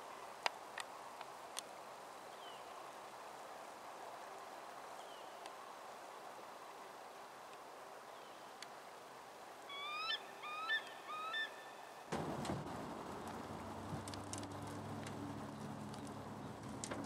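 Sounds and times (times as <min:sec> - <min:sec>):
faint outdoor hiss: 0:00.0 - 0:17.0
bird piping calls: 0:09.7 - 0:11.8.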